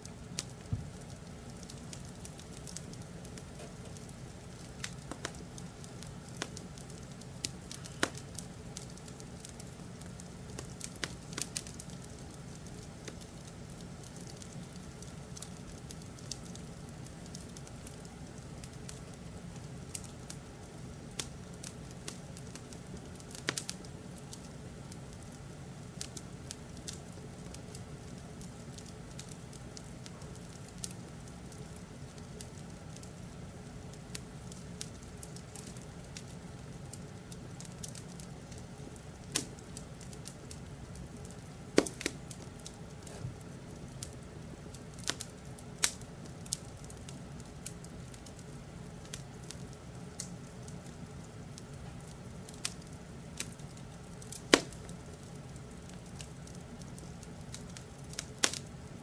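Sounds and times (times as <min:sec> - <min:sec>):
wood fire crackling: 0:00.0 - 0:59.0
sharp fire pops: 0:00.3 - 0:12.0, 0:41.8 - 0:46.0, 0:54.3 - 0:54.9.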